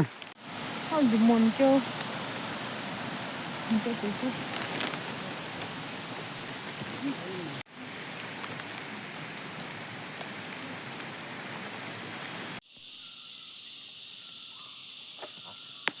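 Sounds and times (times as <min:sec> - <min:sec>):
water rushing: 0:00.0 - 0:12.6
crickets chirping: 0:00.0 - 0:16.0.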